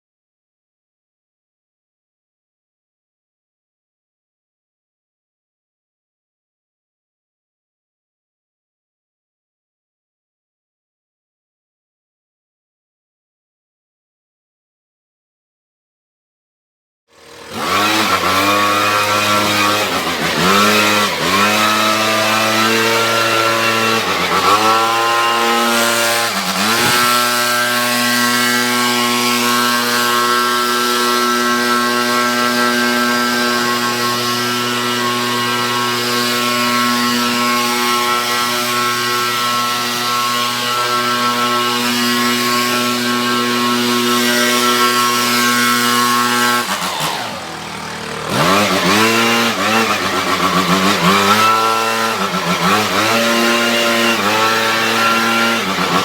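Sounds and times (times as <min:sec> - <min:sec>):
small gas engine revving: 0:17.1 - 0:56.0.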